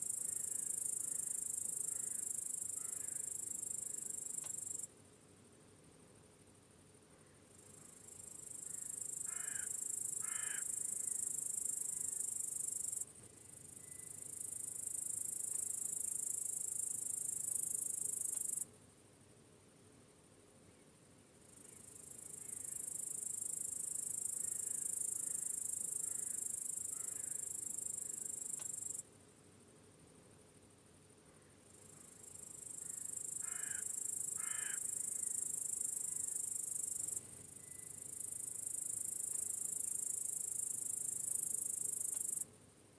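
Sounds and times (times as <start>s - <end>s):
crickets trilling: 7.6s - 18.6s, 21.5s - 29.0s, 31.6s - 42.5s.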